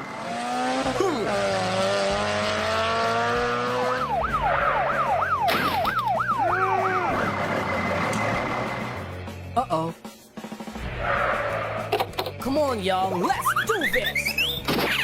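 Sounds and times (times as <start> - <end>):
police siren yelping: 3.9 - 8.5
tyre screech: 10.8 - 12.2.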